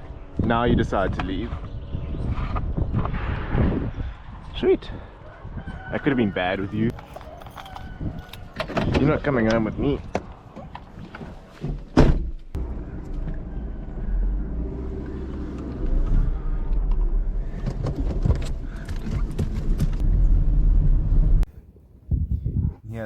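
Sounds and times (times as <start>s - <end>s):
vehicle engine running: 12.6s - 21.4s.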